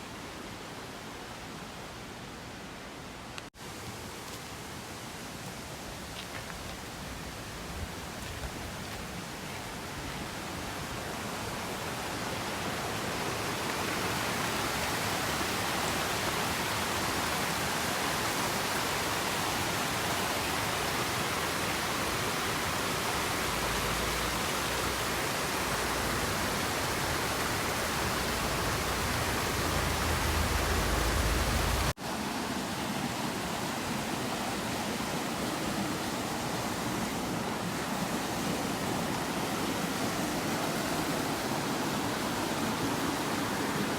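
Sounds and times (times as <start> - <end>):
loud waterfall rush: 9.2 - 43.9.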